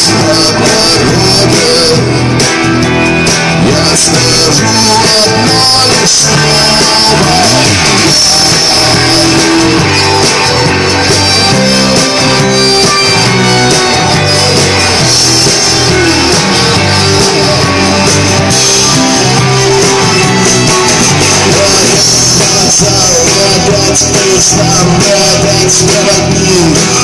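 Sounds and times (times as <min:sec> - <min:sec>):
bass guitar: 0:00.0 - 0:27.0
drum kit: 0:00.0 - 0:27.0
electric guitar: 0:00.0 - 0:27.0.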